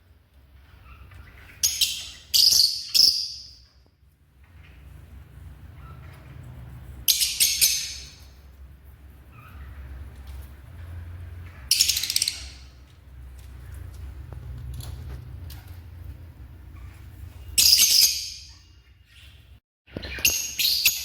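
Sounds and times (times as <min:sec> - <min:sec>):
lovebirds chattering: 0:09.2 - 0:12.9.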